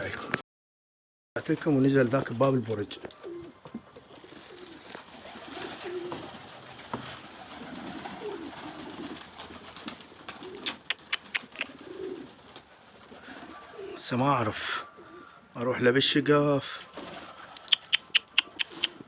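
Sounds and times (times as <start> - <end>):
pigeons cooing: 3.0 - 15.6, 16.8 - 19.0
sharp clicks: 10.6 - 11.8, 17.5 - 19.0.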